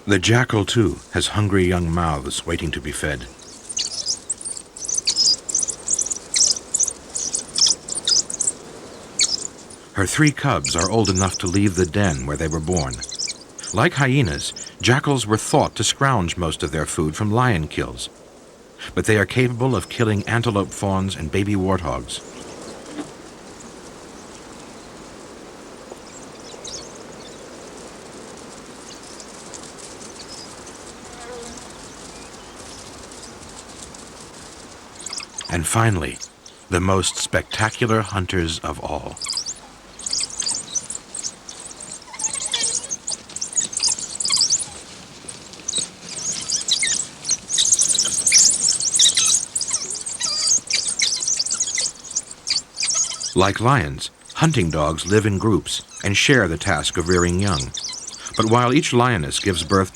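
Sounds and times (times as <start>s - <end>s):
wild dogs calling: 0.0s - 59.9s
faint high bird chirps: 3.3s - 15.1s, 35.0s - 38.2s, 38.8s - 59.9s.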